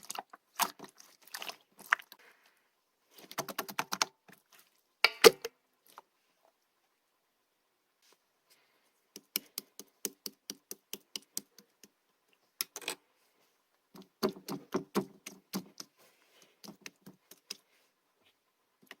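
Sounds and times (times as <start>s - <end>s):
slime popping and squelching: 0.0s - 2.2s.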